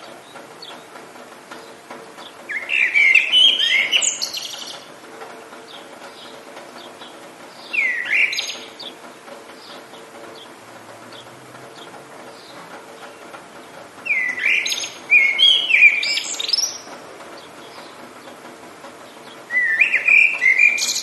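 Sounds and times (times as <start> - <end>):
distant bird chirps: 0.0 - 21.0
rain hiss: 0.0 - 21.0
songbird twittering: 1.6 - 4.9, 5.7 - 9.0, 13.6 - 18.3, 19.1 - 21.0.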